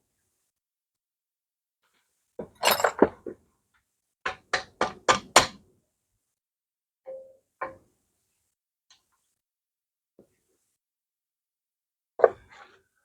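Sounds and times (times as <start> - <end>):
ringing metal clinks: 2.6 - 3.0
metal parts clunking: 2.6 - 3.1
sharp knocks on metal: 4.3 - 5.6.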